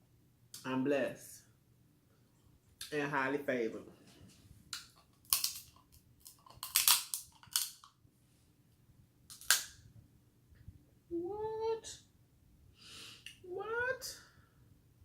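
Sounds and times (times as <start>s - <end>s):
person speaking: 2.8s - 4.0s, 11.1s - 12.0s, 13.4s - 14.3s
crab shells cracking: 4.8s - 8.0s, 9.3s - 9.8s.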